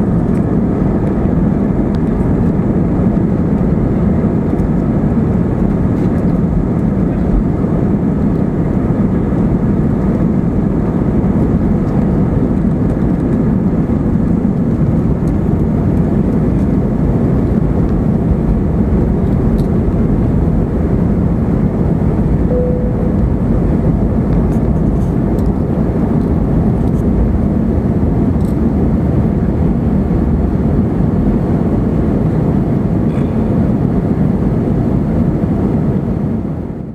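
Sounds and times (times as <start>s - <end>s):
jet engine roar in cabin: 0.0s - 36.9s.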